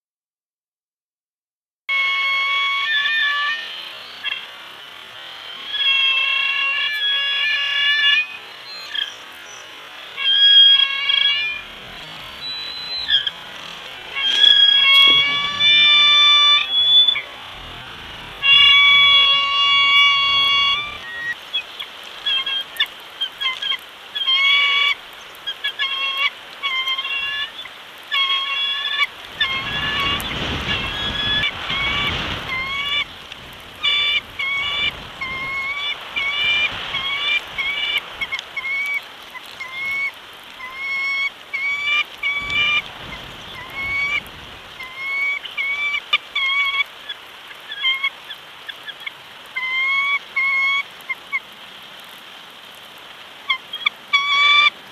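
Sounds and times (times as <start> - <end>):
eagles chirping and chattering: 5.4 - 33.2, 33.8 - 46.8
rush of wind-like noise: 10.9 - 24.2, 29.0 - 47.6.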